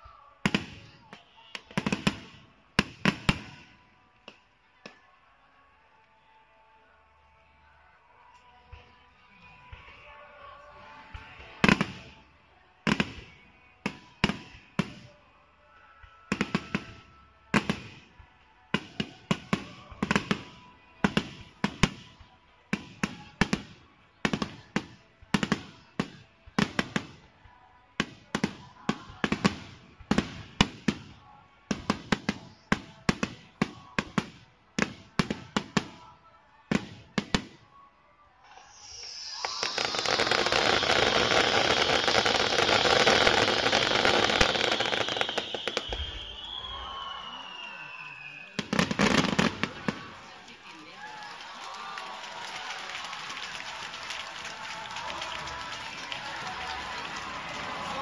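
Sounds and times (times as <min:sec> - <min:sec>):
firework sparks hissing: 0:38.5 - 0:50.3
firework bangs: 0:38.6 - 0:50.2.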